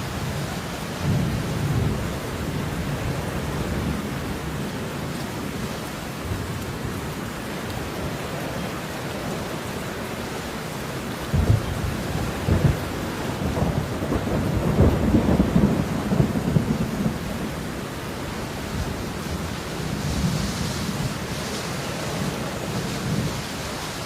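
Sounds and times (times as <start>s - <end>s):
steady rain: 0.0s - 24.0s
thunder rumbling: 11.2s - 23.6s.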